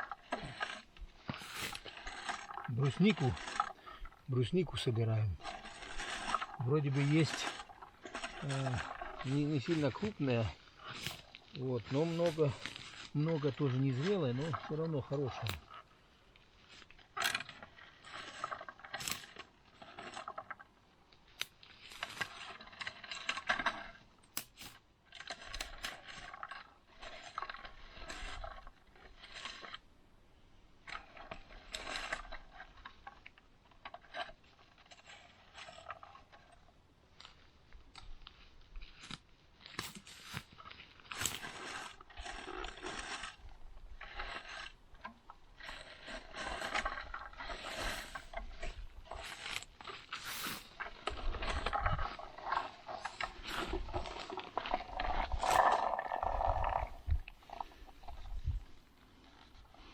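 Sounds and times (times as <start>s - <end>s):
rustling through undergrowth: 0.0s - 29.8s, 34.2s - 59.9s
twigs clicking and snapping: 5.6s - 15.8s, 18.2s - 26.6s.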